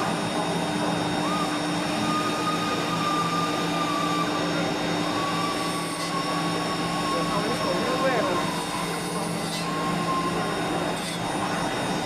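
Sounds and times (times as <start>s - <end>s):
drilling machine whirring: 0.0s - 12.0s.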